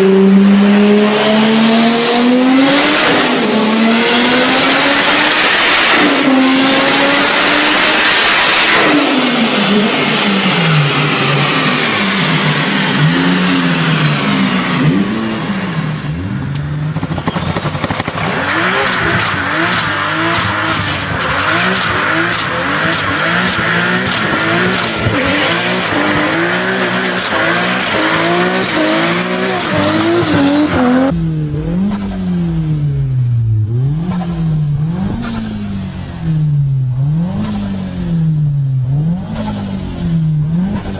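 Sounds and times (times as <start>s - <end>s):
car engines revving: 0.0s - 40.9s
turbocharger whistle: 17.0s - 31.2s.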